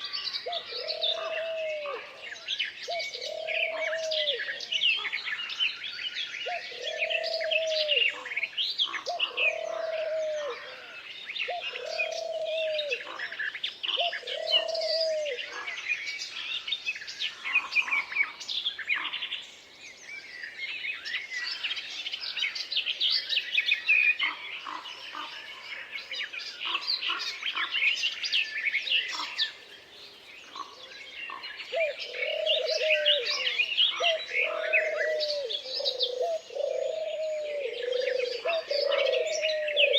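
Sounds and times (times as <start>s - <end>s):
songbirds chirping and trilling: 0.0s - 39.9s
lower arched bird call: 30.7s - 39.9s.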